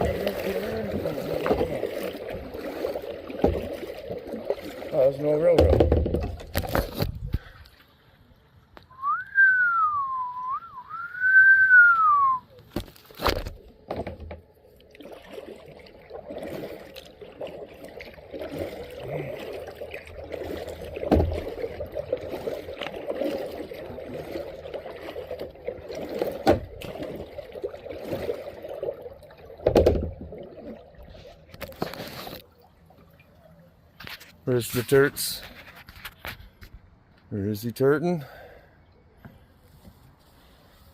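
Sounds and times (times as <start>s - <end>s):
paddle water splashing: 0.0s - 36.8s
sharp knocks: 5.6s - 6.4s
person whistling a tune: 8.9s - 12.5s.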